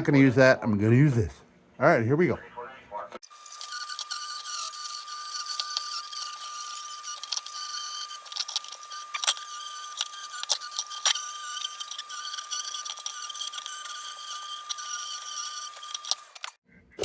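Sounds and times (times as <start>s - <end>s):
rotary tool whining on sheet metal: 3.2s - 16.6s.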